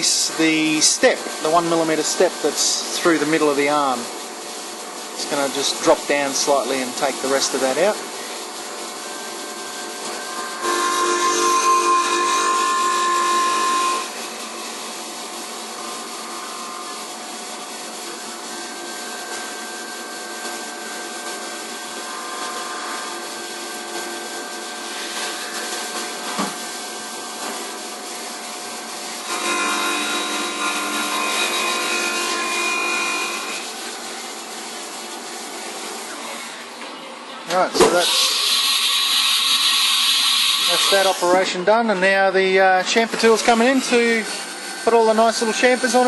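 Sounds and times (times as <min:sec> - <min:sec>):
milling machine drone: 0:05.0 - 0:27.3, 0:29.2 - 0:34.6, 0:37.8 - 0:46.0.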